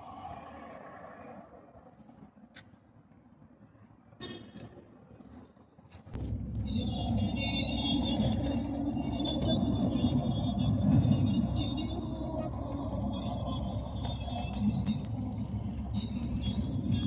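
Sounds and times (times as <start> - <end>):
loud low rumble: 6.2 - 17.0.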